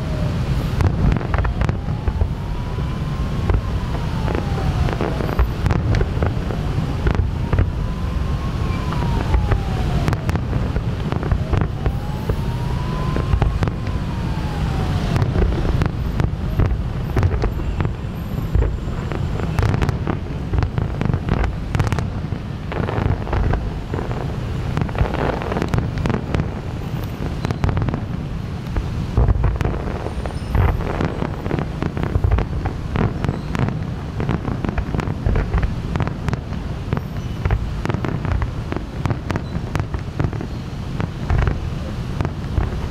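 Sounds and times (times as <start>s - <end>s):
fireworks bangs and crackles: 0.0s - 42.9s
wind rumble on microphone: 0.0s - 42.9s
rising-and-falling wail: 1.4s - 10.7s, 11.3s - 15.9s.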